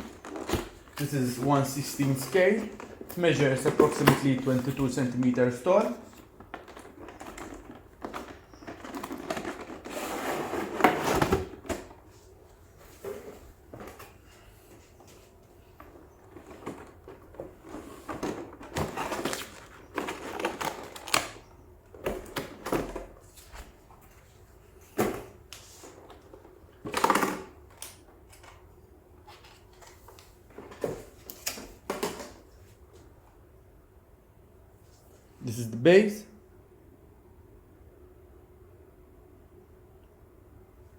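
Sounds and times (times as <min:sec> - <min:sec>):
packaging rustling and scraping: 0:00.0 - 0:27.6.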